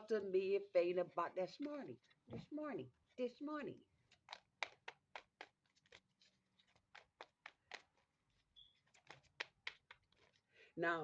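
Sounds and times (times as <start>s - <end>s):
small objects clicking and tapping: 4.1s - 8.0s.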